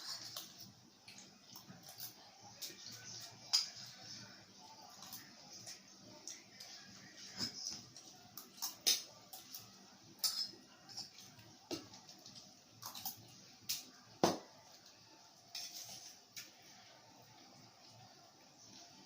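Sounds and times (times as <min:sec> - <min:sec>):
cutlery clinking on plates: 0:10.2 - 0:12.0, 0:15.5 - 0:16.5.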